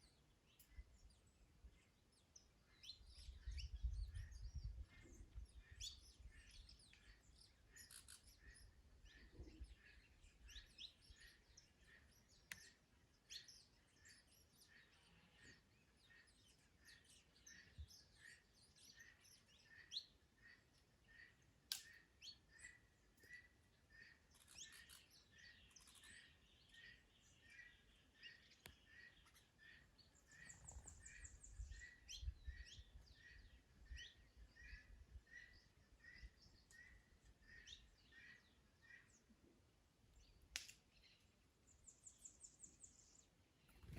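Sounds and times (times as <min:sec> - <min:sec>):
birds chirping and twittering: 0:00.0 - 0:43.9
wind rumble on microphone: 0:03.0 - 0:06.5, 0:30.6 - 0:33.2.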